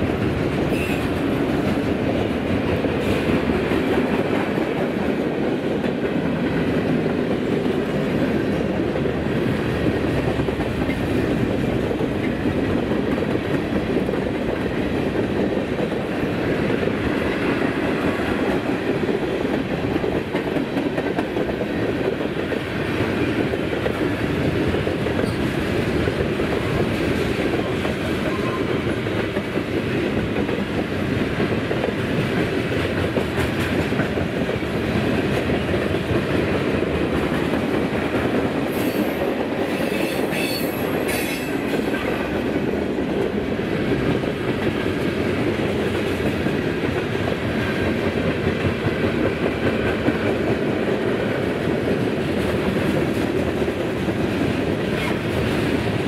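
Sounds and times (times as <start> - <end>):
train wheels clacking: 0.0 - 56.0
high-pitched wheel squeals: 39.8 - 41.5.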